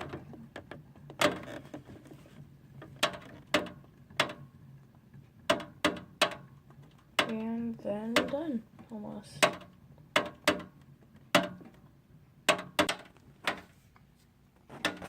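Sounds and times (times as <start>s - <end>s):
sharp clicks and knocks: 2.8s - 4.5s, 5.4s - 11.9s, 12.5s - 13.7s.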